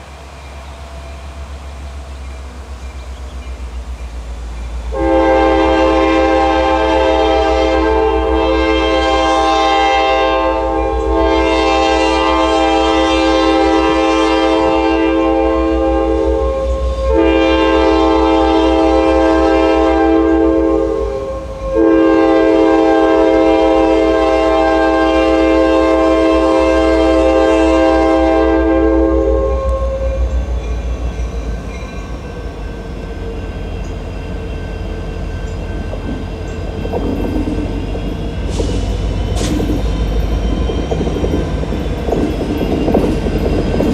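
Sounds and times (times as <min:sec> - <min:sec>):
train rumble: 0:00.0 - 0:43.9
locomotive air horn blasts: 0:04.9 - 0:30.5
wheel clatter on rails: 0:35.4 - 0:43.9.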